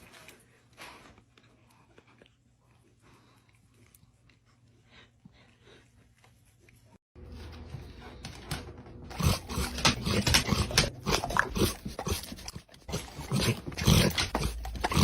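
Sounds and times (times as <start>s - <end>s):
dog vocalizing: 9.1s - 15.0s.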